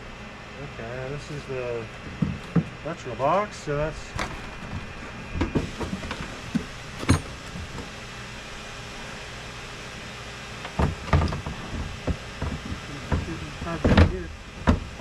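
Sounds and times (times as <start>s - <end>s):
steady low hum: 0.0s - 15.0s
tools knocking and clicking: 5.4s - 7.4s
metal clank: 6.9s - 7.8s.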